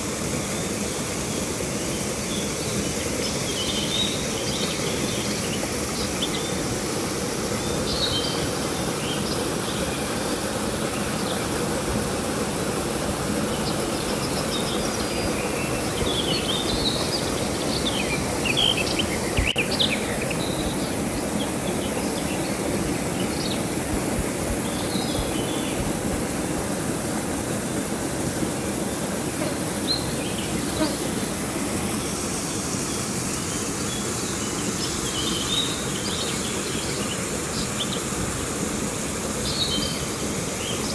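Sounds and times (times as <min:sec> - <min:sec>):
high insect drone: 0:00.0 - 0:40.9
river water rushing: 0:00.0 - 0:40.9.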